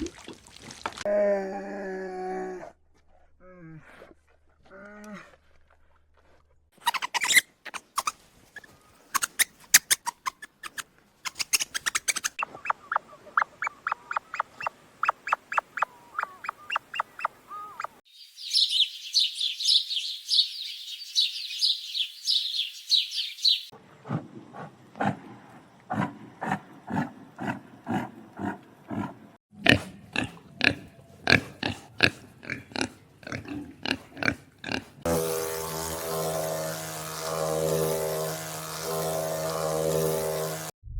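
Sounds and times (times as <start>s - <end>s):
high-pitched animal squeaking: 6.8s - 18.0s
quick repeated animal calls: 6.8s - 18.0s.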